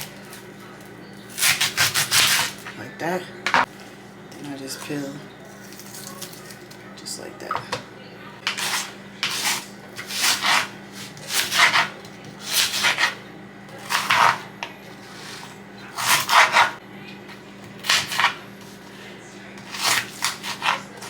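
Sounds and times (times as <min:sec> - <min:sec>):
knife slicing onion on board: 0:01.3 - 0:02.7, 0:08.4 - 0:13.2, 0:13.8 - 0:16.8, 0:17.6 - 0:19.0, 0:19.6 - 0:21.0.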